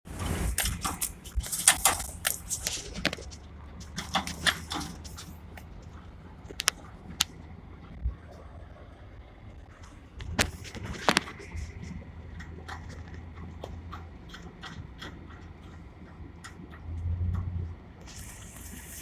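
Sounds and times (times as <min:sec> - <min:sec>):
steady low hum: 0:00.1 - 0:19.0
knocks and clicks: 0:06.5 - 0:07.4.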